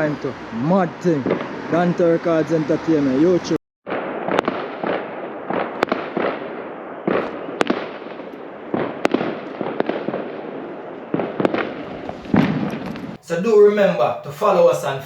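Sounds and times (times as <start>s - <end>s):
firework bangs: 3.9s - 13.2s.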